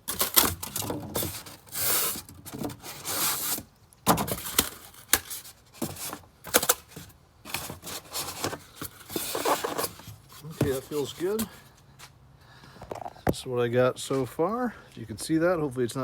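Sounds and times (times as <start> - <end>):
styrofoam scraping on cardboard: 0.0 - 11.7.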